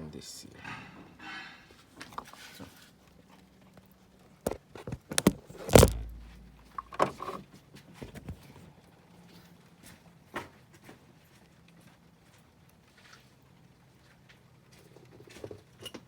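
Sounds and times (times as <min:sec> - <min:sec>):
knocks and clicks of tools: 0:04.5 - 0:07.4
heavy thud: 0:05.2 - 0:07.0.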